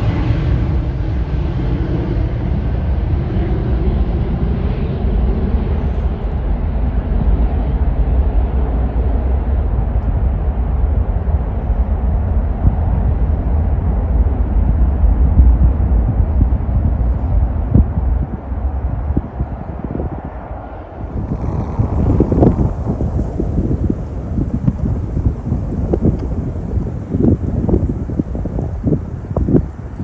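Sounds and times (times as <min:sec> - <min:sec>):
jet engines rumbling: 0:00.0 - 0:30.0
high jet hiss: 0:21.0 - 0:30.0.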